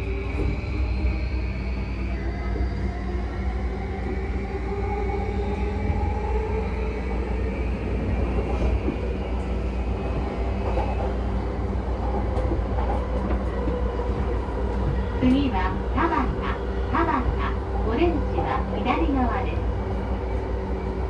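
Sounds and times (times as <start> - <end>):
train wheels rumbling: 0.0 - 21.0.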